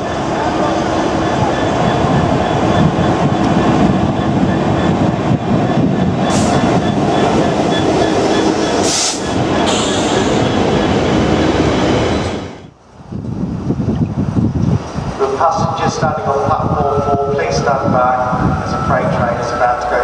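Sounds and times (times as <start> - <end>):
diesel locomotive engine hum: 0.0 - 20.0
wheels rumbling on rails: 0.0 - 20.0.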